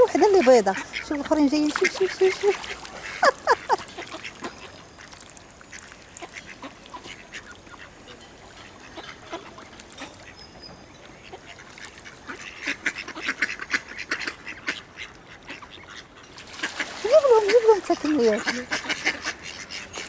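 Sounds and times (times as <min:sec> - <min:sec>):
ducks quacking: 0:00.0 - 0:04.7, 0:11.2 - 0:20.0.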